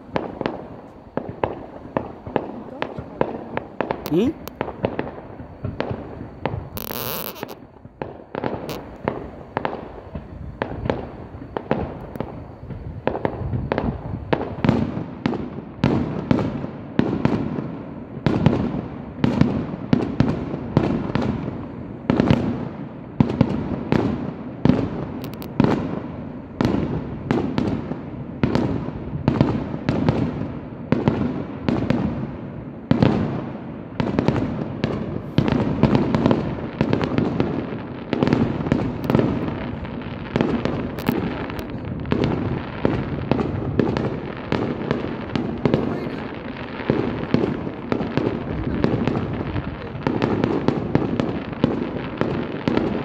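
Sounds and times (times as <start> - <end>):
firework shells bursting: 0.0 - 14.8, 25.1 - 25.9, 34.4 - 53.0.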